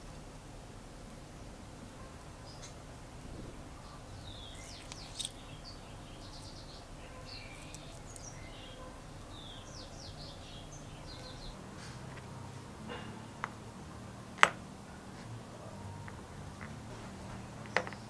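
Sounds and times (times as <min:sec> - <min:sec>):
low steady hum: 0:00.0 - 0:17.2
small birds chirping: 0:01.3 - 0:12.5.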